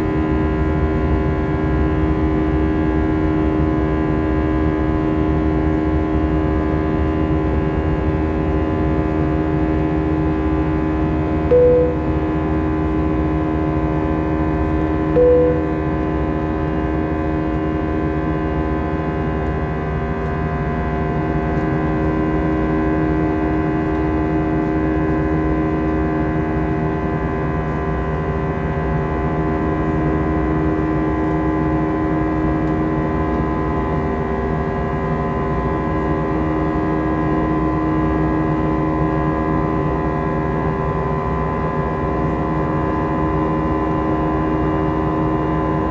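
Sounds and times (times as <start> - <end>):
single tone: 11.5 - 12.5, 15.2 - 16.0
airliner cabin drone: 11.5 - 16.9.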